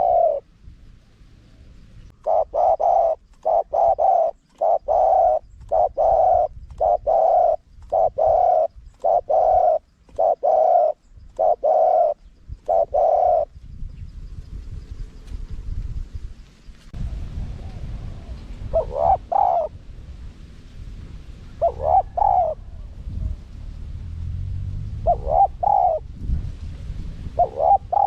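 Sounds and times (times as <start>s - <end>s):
dove cooing: 0.0s - 0.5s, 2.1s - 13.5s, 17.5s - 19.8s, 21.5s - 23.4s, 25.0s - 26.1s, 27.4s - 28.0s.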